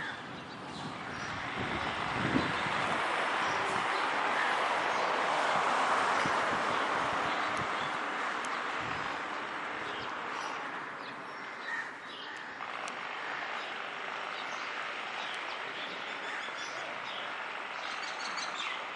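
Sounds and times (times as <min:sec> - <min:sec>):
small birds chirping: 0:06.1 - 0:18.9.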